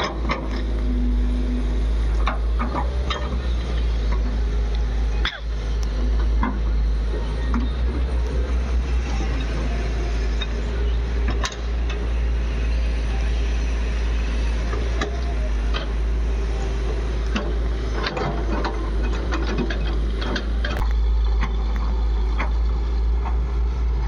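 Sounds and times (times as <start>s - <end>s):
metallic clanks and knocks: 0.0s - 0.8s, 2.1s - 4.4s, 5.2s - 7.8s, 17.3s - 21.6s
heavy diesel machinery running: 0.0s - 24.0s.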